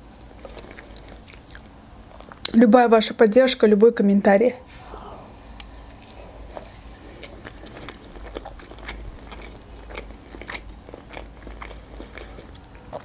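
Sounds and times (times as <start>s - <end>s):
close chewing with wet crunches: 0.2s - 2.6s, 5.4s - 13.0s.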